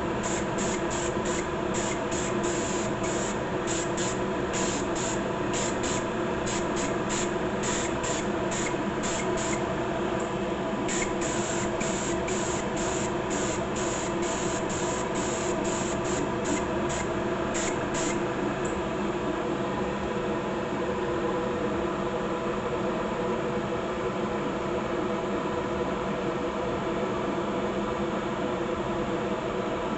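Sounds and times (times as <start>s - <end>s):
spray gun hissing bursts: 0.0s - 9.6s, 10.9s - 18.2s
spray system hum: 0.0s - 9.9s, 10.8s - 18.4s.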